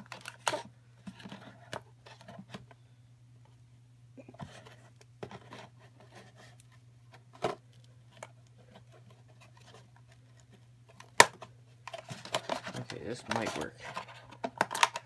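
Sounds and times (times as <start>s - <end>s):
steady low hum: 0.0s - 15.0s
cardboard packaging handled: 8.6s - 15.0s.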